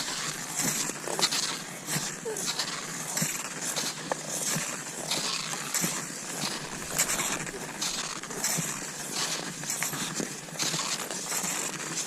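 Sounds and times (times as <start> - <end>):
ski poles planting in snow: 0.0 - 12.0
skis sliding on snow: 0.0 - 12.0.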